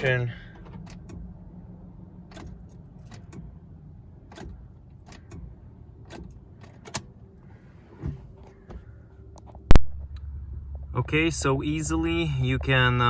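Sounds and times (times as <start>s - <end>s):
car keys jangling: 0.0s - 1.3s, 2.2s - 7.5s
steady low hum: 0.0s - 13.0s.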